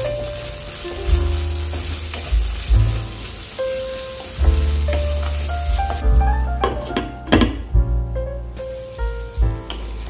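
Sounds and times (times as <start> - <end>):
food sizzling in metal pan: 0.0 - 7.7, 8.5 - 10.0
wooden spatula scraping: 1.1 - 7.4.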